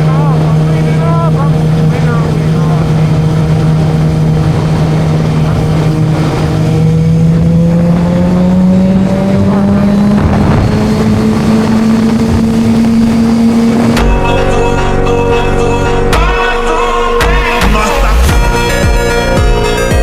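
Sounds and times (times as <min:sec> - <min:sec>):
motorcycle engine running: 0:00.0 - 0:16.4
music: 0:13.9 - 0:20.0.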